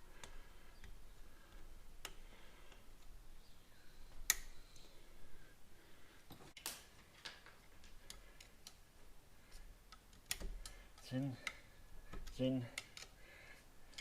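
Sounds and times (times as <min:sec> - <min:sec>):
faint metal clicks: 0:06.4 - 0:14.0.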